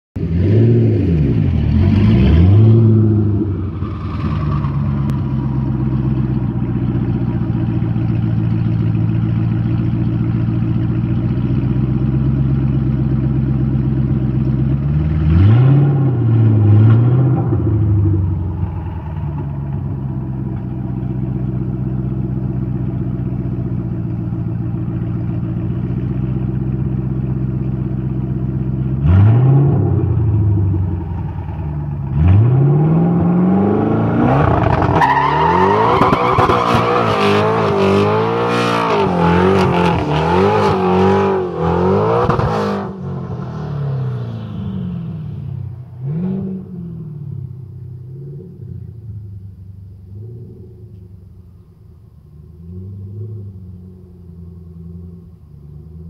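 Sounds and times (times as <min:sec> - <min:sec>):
car engine idling and revving: 0:00.2 - 0:56.0.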